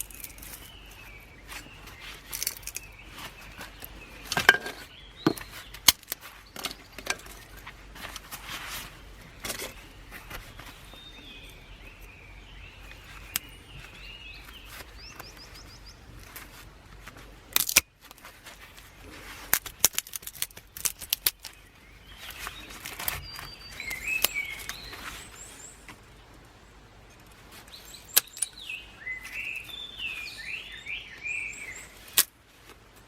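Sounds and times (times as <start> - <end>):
small birds singing: 0.0 - 33.0.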